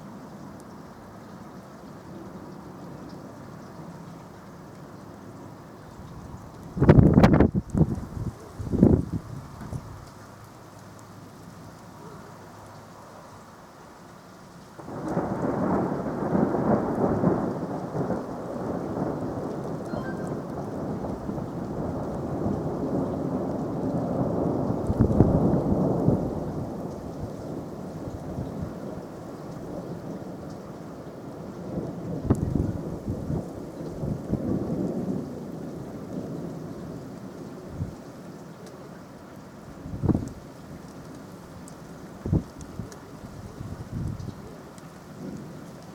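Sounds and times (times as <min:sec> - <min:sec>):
rain falling: 0:00.0 - 0:45.9
thunder rolling: 0:14.8 - 0:26.8.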